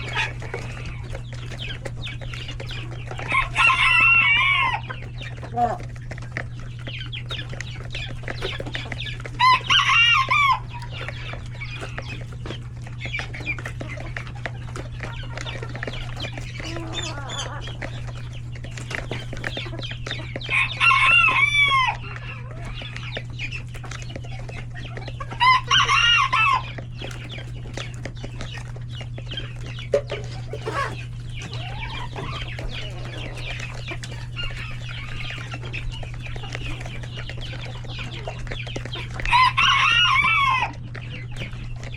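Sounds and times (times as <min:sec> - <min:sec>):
roosters crowing: 0:00.0 - 0:23.3, 0:24.4 - 0:27.9, 0:30.2 - 0:41.9
chickens clucking: 0:00.0 - 0:41.9.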